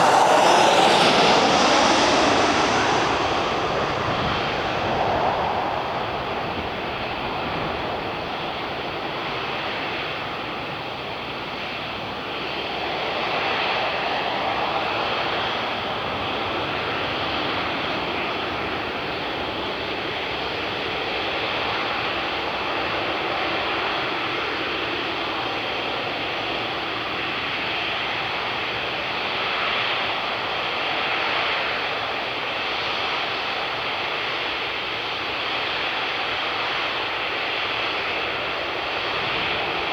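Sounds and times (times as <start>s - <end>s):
jet engines running: 0.0s - 9.8s.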